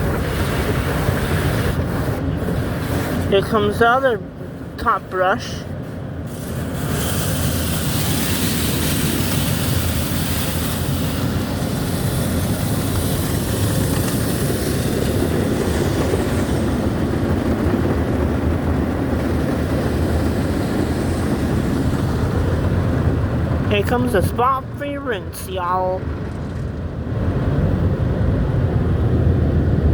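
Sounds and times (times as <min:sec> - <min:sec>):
car wash brushes scrubbing: 0:06.3 - 0:16.6
water spraying hiss: 0:06.3 - 0:16.6.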